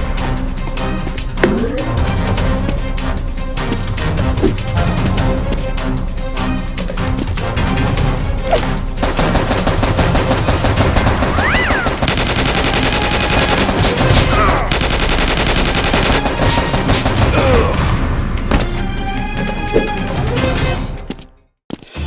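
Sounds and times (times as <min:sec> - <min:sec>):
background music: 0:00.0 - 0:22.0
rapid automatic gunfire: 0:09.0 - 0:17.9.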